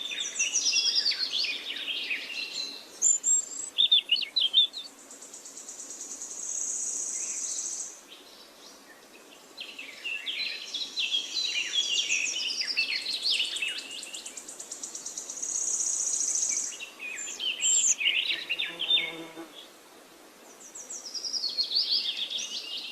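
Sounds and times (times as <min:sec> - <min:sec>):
bird chirps: 0:15.1 - 0:19.3.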